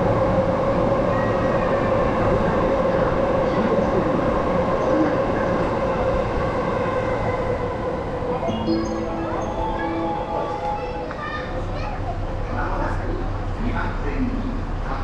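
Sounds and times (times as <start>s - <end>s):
train rumbling: 0.0s - 15.0s
mid-pitched drone: 7.8s - 15.0s.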